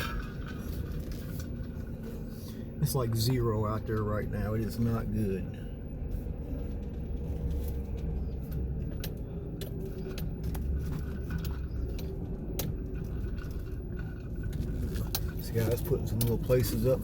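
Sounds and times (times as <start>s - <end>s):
car engine and road rumble: 0.0s - 17.0s
light clicks and rattles: 6.5s - 17.0s.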